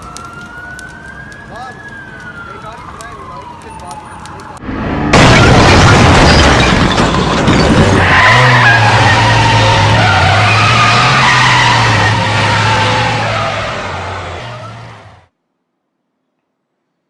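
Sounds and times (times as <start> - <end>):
road and wind noise rushing: 0.0 - 15.3.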